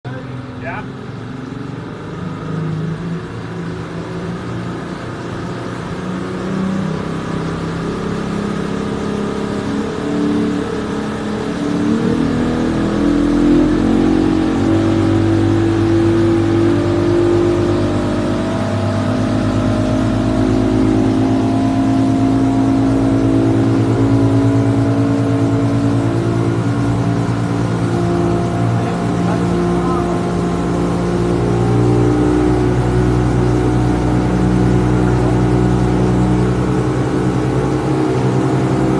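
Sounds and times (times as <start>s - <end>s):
outboard motor running: 0.1s - 38.9s.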